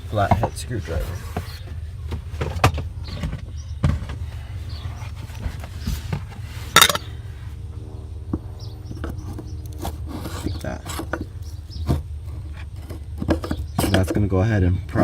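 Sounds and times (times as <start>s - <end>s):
steady low hum: 0.0s - 15.0s
hand tools clicking and knocking: 9.8s - 14.4s.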